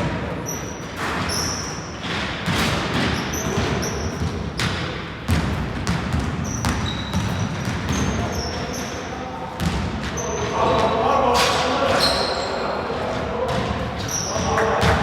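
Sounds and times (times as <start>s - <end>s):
basketball bouncing on court: 0.0s - 8.9s, 9.5s - 10.2s, 13.4s - 15.0s
sneaker squeaks: 0.2s - 12.9s, 13.5s - 15.0s.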